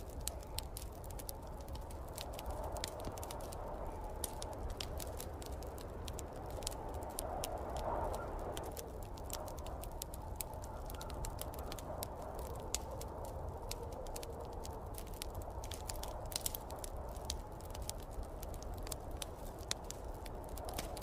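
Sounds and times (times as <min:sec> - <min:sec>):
snowstorm wind whooshing: 0:00.0 - 0:10.6
wood fire crackling and popping: 0:00.0 - 0:21.0.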